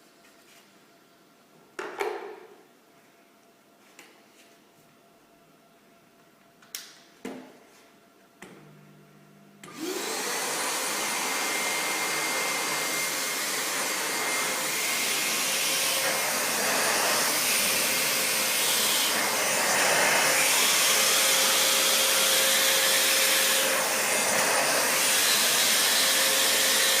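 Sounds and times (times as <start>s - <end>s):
vacuum cleaner motor whine: 9.6s - 27.0s.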